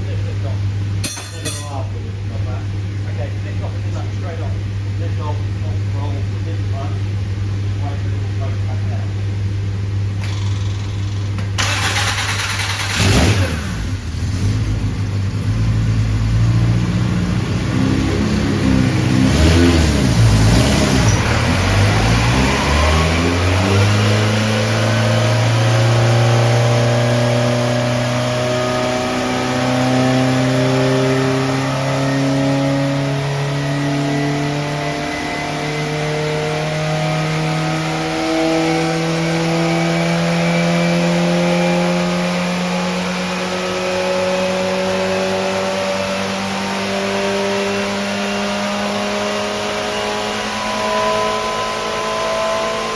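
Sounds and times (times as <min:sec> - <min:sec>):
racing car engine revving: 0:10.2 - 0:52.9.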